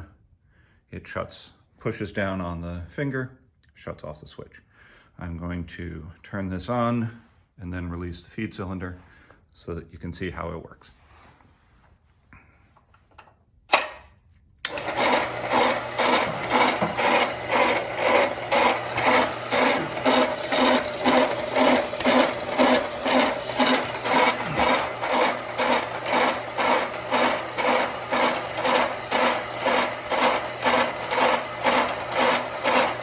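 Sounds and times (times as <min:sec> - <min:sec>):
bandsaw motor running: 0:14.6 - 0:33.0.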